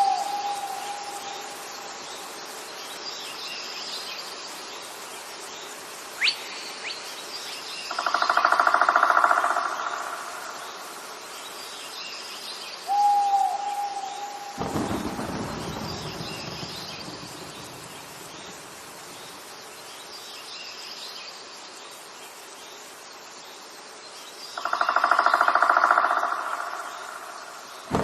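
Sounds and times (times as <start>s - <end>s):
long whistled bird call: 0.0s - 1.9s, 12.9s - 17.6s
faint background bird chirping: 0.0s - 28.0s.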